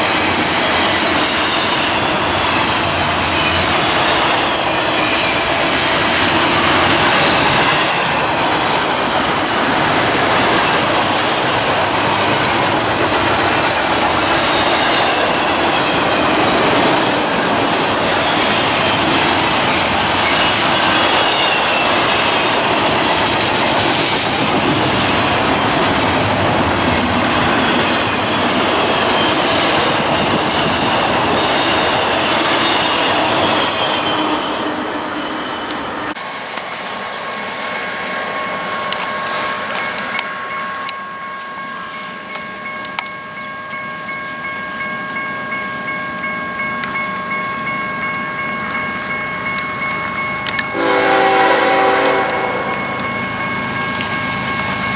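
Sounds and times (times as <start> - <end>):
wheels squealing against rails: 0.0 - 54.9.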